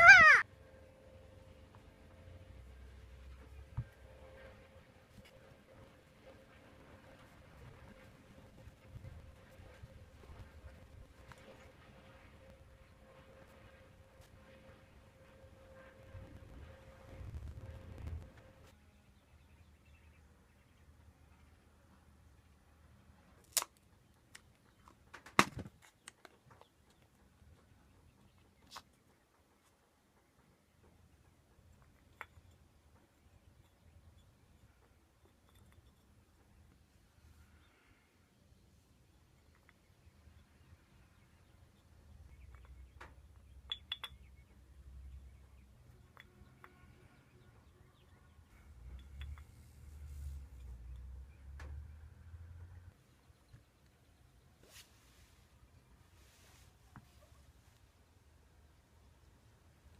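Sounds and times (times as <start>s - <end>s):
low background noise: 0.0s - 59.9s
faint low hum: 26.5s - 59.9s
light sharp clinks: 33.6s - 36.4s, 43.6s - 44.4s.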